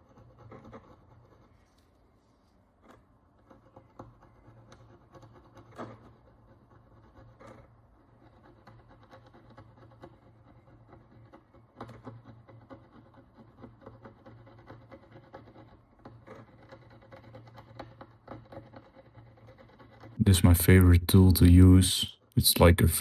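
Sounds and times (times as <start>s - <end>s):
steady low hum: 20.2s - 23.0s.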